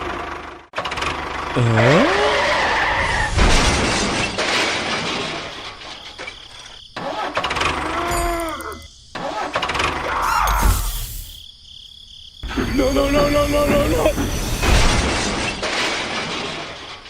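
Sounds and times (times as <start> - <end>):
vehicle engine: 0.0 - 2.9.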